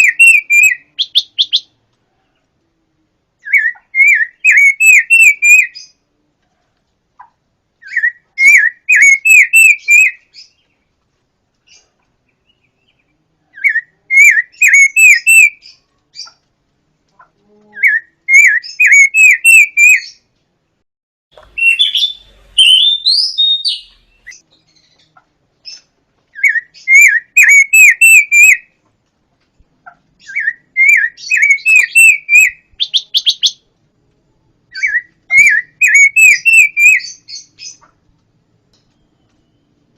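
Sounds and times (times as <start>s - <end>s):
bird singing whistled notes: 0.0s - 1.7s, 3.4s - 6.0s, 7.8s - 10.6s, 12.3s - 16.3s, 17.8s - 20.2s, 21.4s - 25.1s, 26.4s - 28.7s, 30.2s - 33.6s, 34.7s - 37.8s
buzzy bird trill: 0.0s - 1.7s, 7.8s - 10.7s, 11.7s - 16.4s, 17.8s - 20.2s, 21.5s - 28.6s, 30.2s - 33.6s, 34.7s - 37.9s
squeaky bird call: 13.6s - 16.4s, 17.8s - 20.2s, 26.4s - 28.6s, 30.3s - 33.6s, 34.8s - 37.9s.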